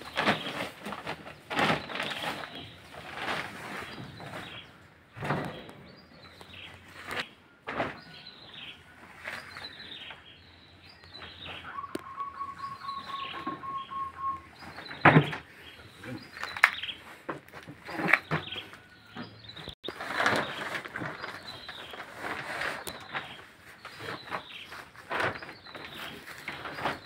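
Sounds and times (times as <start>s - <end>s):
bird chirping falling calls: 1.5s - 17.2s.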